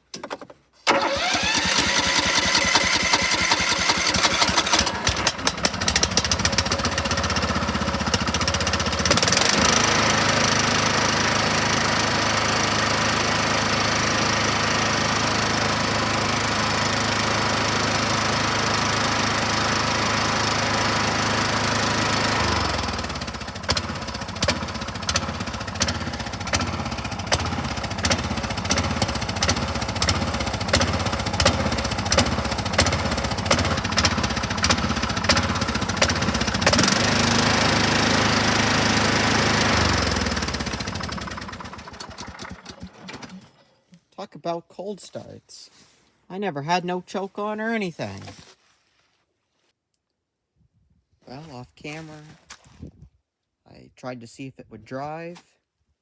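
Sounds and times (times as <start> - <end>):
riding mower engine starting and running: 0.3 - 43.9.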